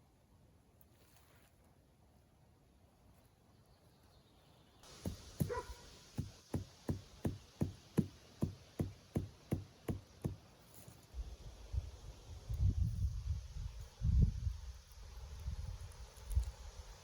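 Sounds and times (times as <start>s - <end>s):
hammering blows: 4.9s - 10.4s.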